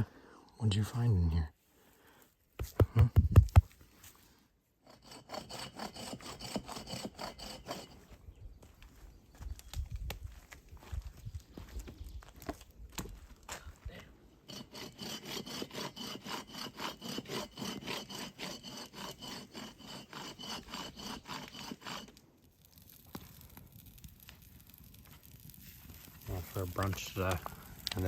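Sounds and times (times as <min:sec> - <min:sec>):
hand saw cutting wood: 0:04.8 - 0:08.1, 0:14.4 - 0:22.2.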